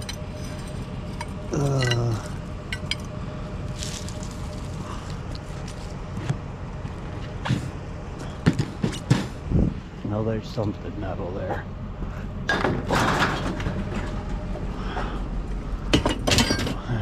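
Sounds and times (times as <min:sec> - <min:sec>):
scrap items clinking: 0:00.0 - 0:06.0
low hum: 0:00.0 - 0:17.0.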